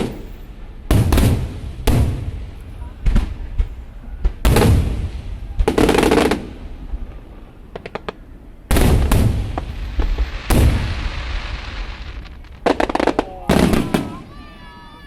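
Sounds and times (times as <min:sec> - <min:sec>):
firework bangs with crackling: 0:00.0 - 0:07.0, 0:07.7 - 0:14.6
small firework pops: 0:07.7 - 0:10.9, 0:11.6 - 0:14.2.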